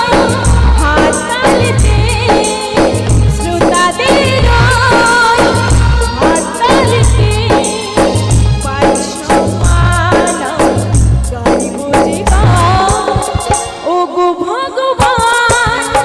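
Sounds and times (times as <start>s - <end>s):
deep drum strokes: 0.0s - 13.7s.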